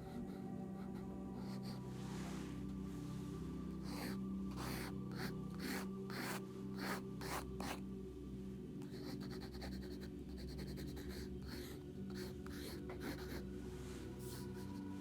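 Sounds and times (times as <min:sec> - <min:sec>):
pencil strokes scratching paper: 0:03.8 - 0:07.8, 0:08.9 - 0:15.0.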